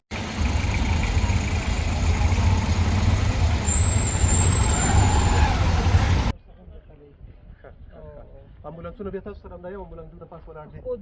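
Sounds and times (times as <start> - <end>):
vehicle engine and road noise: 0.0 - 6.4.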